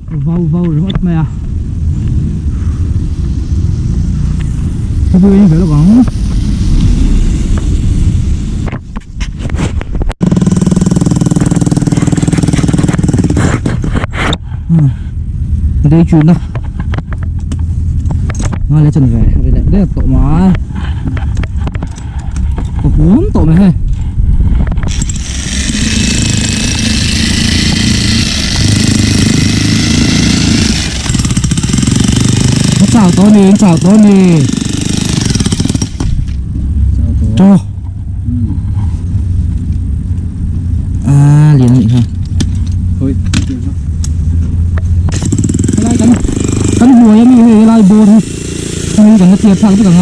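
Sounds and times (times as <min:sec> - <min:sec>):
fast even pulsing: 0:10.2 - 0:14.1, 0:24.9 - 0:36.3, 0:45.1 - 0:50.0
jackhammer hammering rock: 0:10.2 - 0:14.4, 0:24.9 - 0:36.4, 0:45.1 - 0:50.0.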